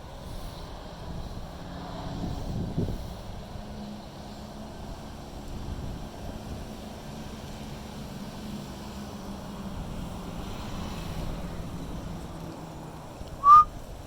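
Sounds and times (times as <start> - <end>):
wind rumbling over microphone: 0.1 - 3.8
high-pitched squeak: 13.4 - 13.7.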